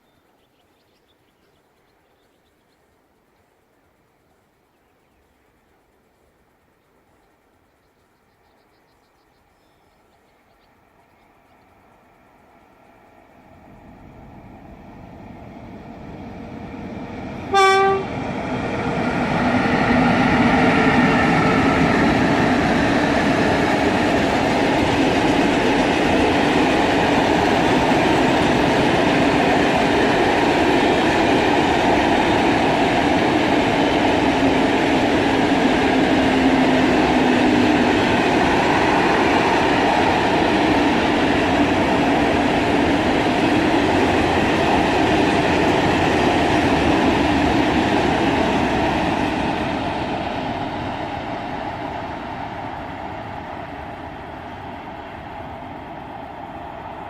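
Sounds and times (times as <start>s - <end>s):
freight train passing: 9.4s - 57.0s
train horn blast: 17.5s - 18.2s.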